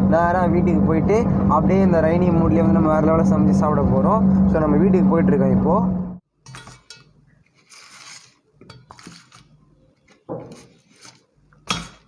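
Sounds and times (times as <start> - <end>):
rustling of handled things: 6.4 - 12.0.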